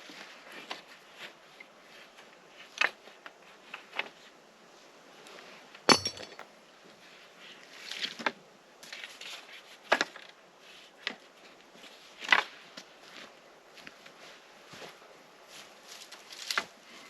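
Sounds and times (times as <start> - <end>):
short metallic ring: 5.9 - 6.4
camping gear knocking and clinking: 5.9 - 6.5.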